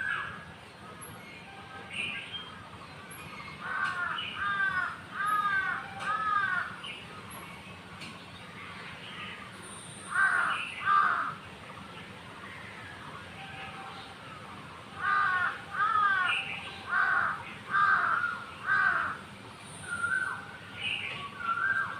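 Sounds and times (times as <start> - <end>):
crow cawing: 3.6 - 6.8, 10.1 - 11.4, 15.0 - 19.2.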